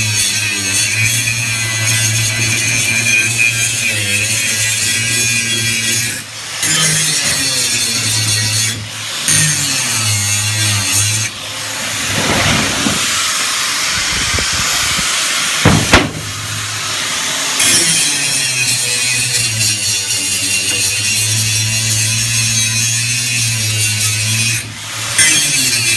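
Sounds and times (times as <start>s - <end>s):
sharp knocks: 14.1s - 16.7s.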